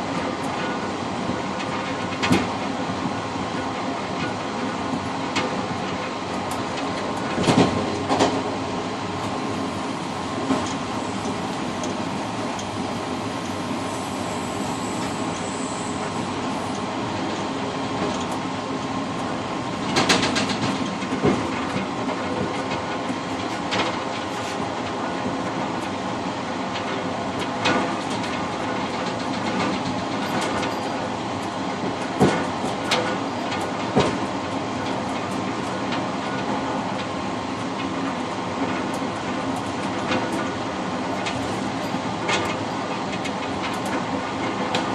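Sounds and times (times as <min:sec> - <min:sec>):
train rolling rumble: 0:00.0 - 0:44.9
faint steady whine: 0:09.3 - 0:17.2.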